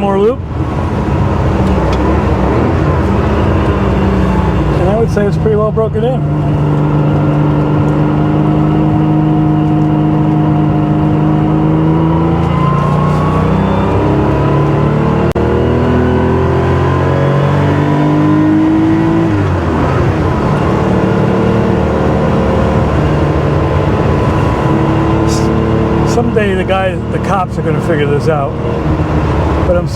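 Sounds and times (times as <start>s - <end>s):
car engine revving on road: 0.0s - 29.9s.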